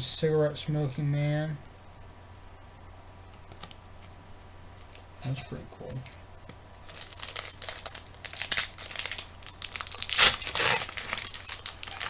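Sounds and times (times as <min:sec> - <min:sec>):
plastic wrapping crinkling and tearing: 0:03.3 - 0:04.1, 0:06.8 - 0:12.0.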